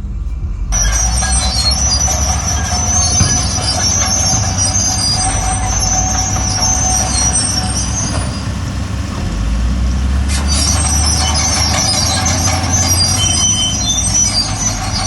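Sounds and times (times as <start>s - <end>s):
bulldozer diesel engine: 0.0s - 15.0s
crawler tracks squealing: 0.7s - 15.0s.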